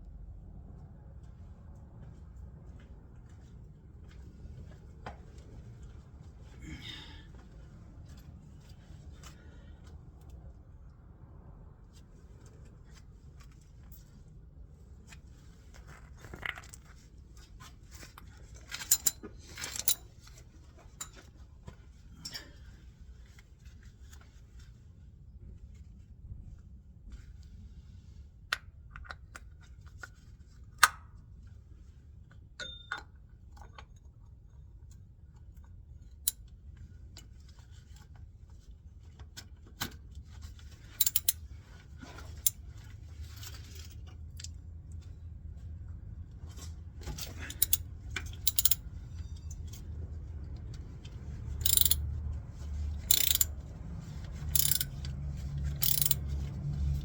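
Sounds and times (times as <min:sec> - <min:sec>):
metal tools clinking: 0:18.7 - 0:20.1, 0:41.0 - 0:41.4, 0:47.3 - 0:48.8, 0:51.6 - 0:52.0, 0:53.1 - 0:53.6, 0:54.6 - 0:55.0, 0:55.7 - 0:56.2.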